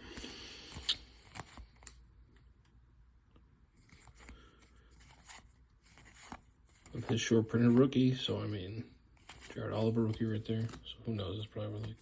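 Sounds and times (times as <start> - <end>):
trading cards clicking and rustling: 0.1 - 2.0, 3.8 - 8.6, 9.2 - 12.0.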